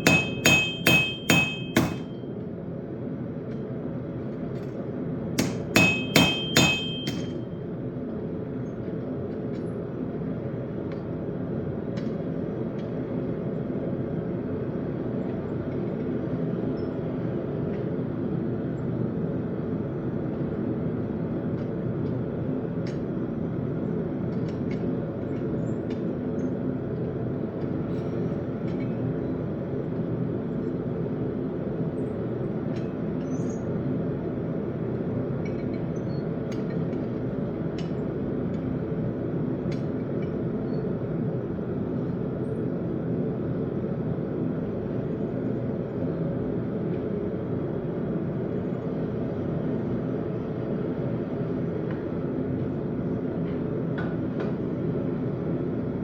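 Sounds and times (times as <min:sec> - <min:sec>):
hammer blows on steel: 0:00.0 - 0:02.2, 0:05.4 - 0:07.5.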